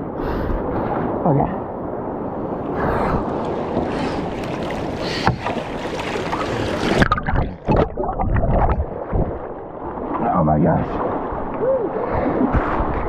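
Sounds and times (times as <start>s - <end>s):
water splashes: 2.2s - 13.0s
whitewater rushing: 3.7s - 7.4s.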